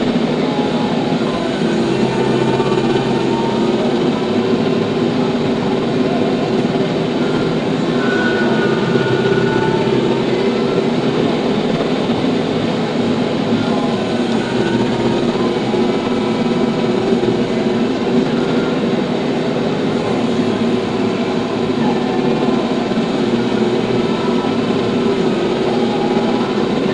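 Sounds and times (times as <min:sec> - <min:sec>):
tractor engine running: 0:00.0 - 0:26.9.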